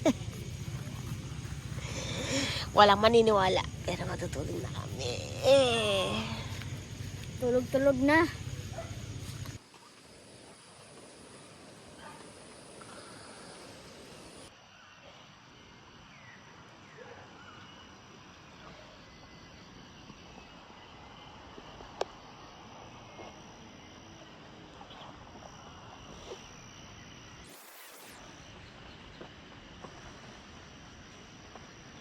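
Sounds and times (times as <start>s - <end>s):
insects chirping faintly: 0.0s - 32.0s
steady hiss: 27.4s - 28.9s.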